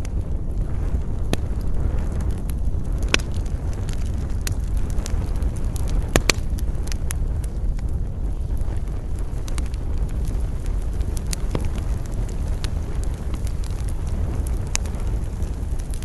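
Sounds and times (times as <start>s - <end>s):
campfire crackling and popping: 0.0s - 16.0s
low rumble of burning fire: 0.0s - 16.0s
wind: 0.0s - 16.0s.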